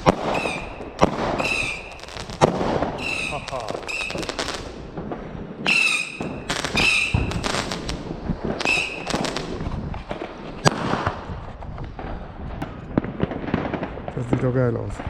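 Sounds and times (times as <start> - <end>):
sharp loud crack: 0.0 - 8.0
fireworks crackling and banging: 0.0 - 15.0
shrill firework whistles: 0.2 - 2.3, 3.0 - 4.6, 5.6 - 7.8, 8.6 - 9.4.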